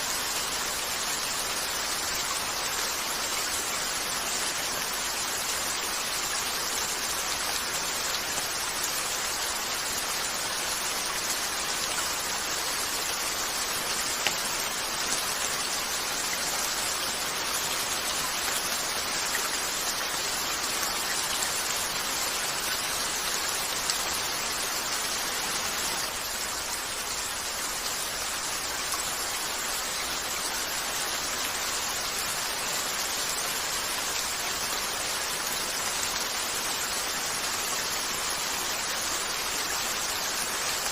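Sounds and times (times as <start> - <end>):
rain on a window: 0.0 - 40.9.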